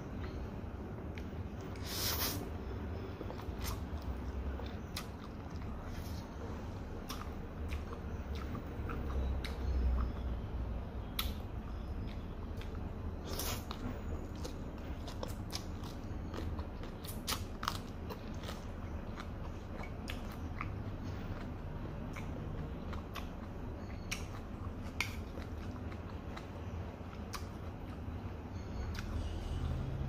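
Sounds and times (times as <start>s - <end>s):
person chewing food: 0.0s - 29.9s
wet mouth clicks and smacks: 11.2s - 11.4s, 24.1s - 25.5s.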